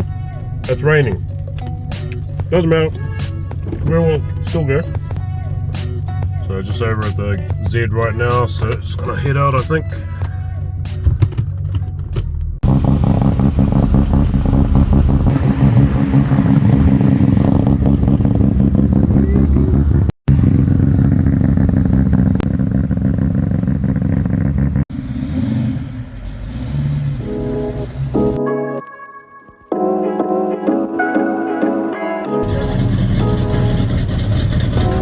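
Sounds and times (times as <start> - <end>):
music: 0.0 - 12.6, 27.3 - 35.0
car engine running loudly: 0.0 - 28.4, 32.4 - 35.0.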